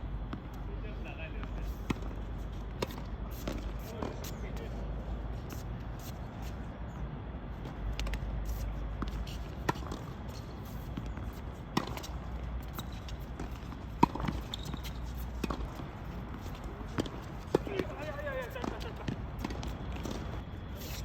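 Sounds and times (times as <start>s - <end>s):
racket hitting tennis ball: 11.2s - 18.0s.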